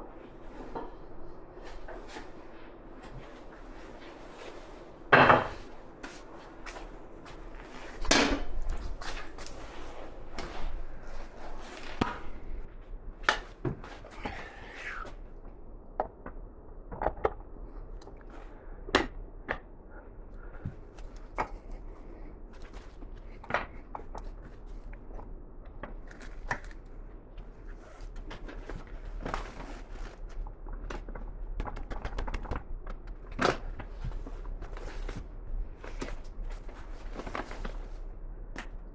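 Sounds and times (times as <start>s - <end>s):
faint steady hum: 0.0s - 38.9s
tools knocking on workbench: 5.2s - 5.6s.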